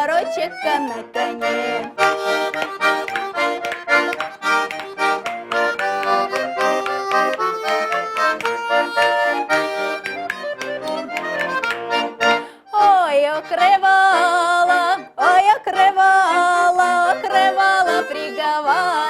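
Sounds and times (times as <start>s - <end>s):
woman singing with vibrato: 0.0s - 2.1s, 12.6s - 19.0s
button accordion folk tune: 0.0s - 19.0s.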